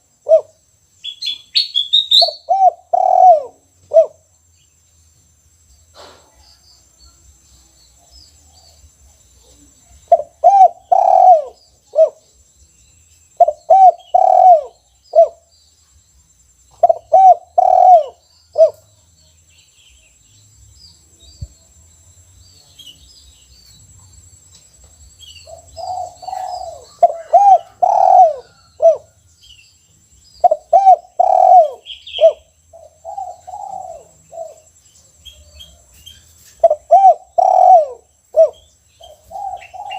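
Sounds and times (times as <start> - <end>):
dove cooing: 0.0 - 0.5, 2.1 - 4.2, 10.1 - 12.2, 13.4 - 15.5, 16.8 - 18.8, 25.4 - 29.2, 30.4 - 34.7, 36.6 - 39.9
faint twittering of small birds: 0.0 - 39.9.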